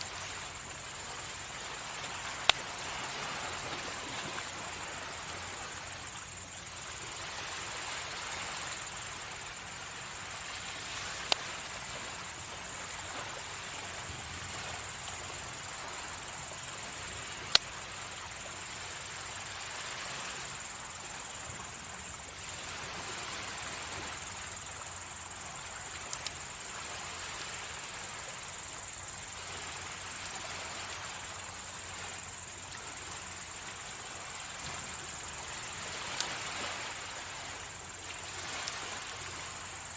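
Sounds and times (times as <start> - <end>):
high-pitched insect trill: 0.0 - 39.9
sea waves washing onto shore: 0.0 - 39.9.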